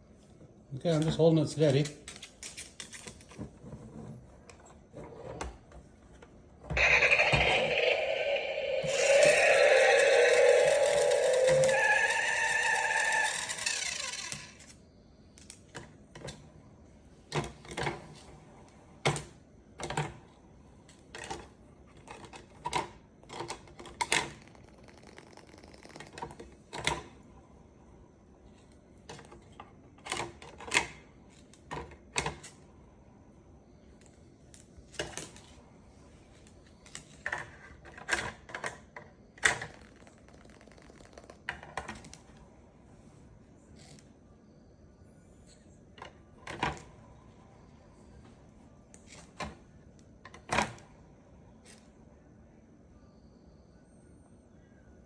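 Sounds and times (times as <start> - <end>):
loud pitched sound: 6.8 - 14.2.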